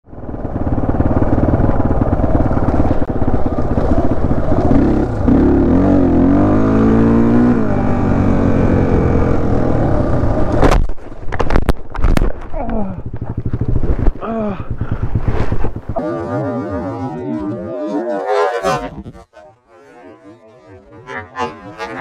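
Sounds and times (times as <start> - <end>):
dirt bike engine revving: 0.5 - 10.6, 13.0 - 19.4.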